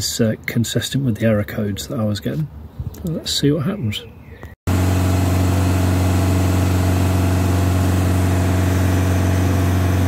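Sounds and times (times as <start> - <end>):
diesel engine idling: 4.7 - 10.0.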